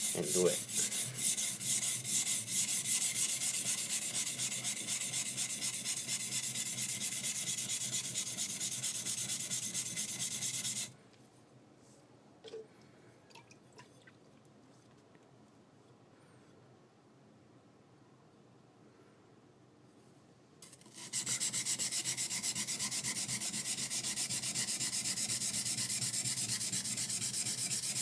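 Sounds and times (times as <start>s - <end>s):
knife scraping on whetstone: 0.0s - 10.9s, 20.7s - 28.0s.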